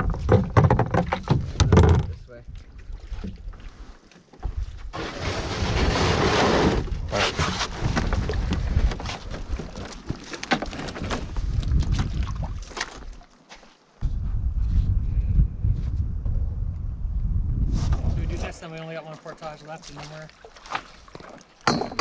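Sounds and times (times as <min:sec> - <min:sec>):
wind rumbling on microphone: 0:00.0 - 0:13.2, 0:14.0 - 0:18.8
paddle splashing in water: 0:00.0 - 0:13.5, 0:18.3 - 0:21.9.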